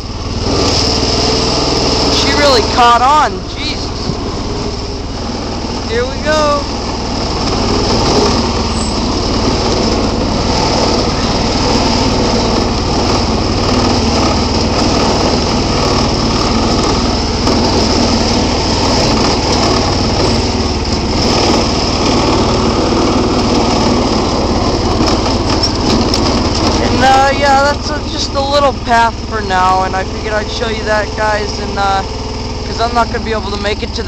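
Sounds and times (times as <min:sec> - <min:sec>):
garden tractor engine running: 0:00.0 - 0:34.0.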